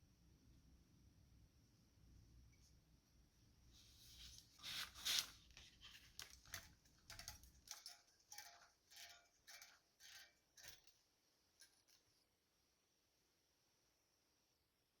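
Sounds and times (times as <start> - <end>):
metal parts clicking and clinking: 6.2 - 12.1.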